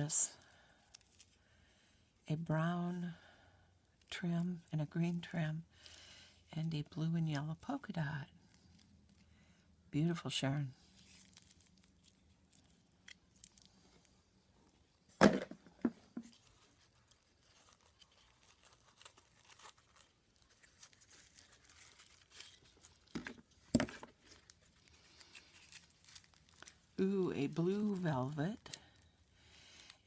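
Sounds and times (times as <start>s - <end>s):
bags crinkling and rustling: 10.8s - 30.0s
sharp crackles: 16.9s - 29.1s.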